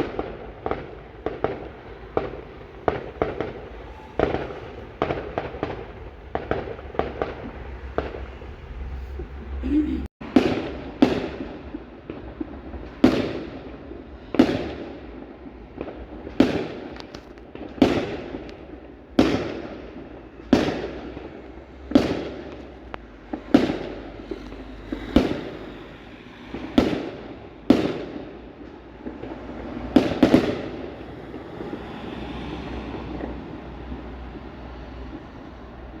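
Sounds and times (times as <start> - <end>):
fireworks banging: 0.0 - 36.0
low rumble: 1.1 - 10.1.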